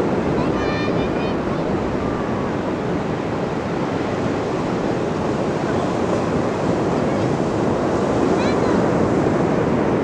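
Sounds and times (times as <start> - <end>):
ocean waves breaking on beach: 0.0 - 10.0.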